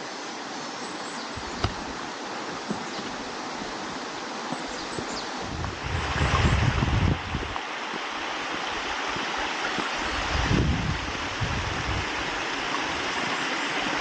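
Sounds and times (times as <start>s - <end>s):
stream rushing: 0.0s - 14.0s
wind rumble on microphone: 1.4s - 2.0s, 4.9s - 7.6s, 8.5s - 14.0s.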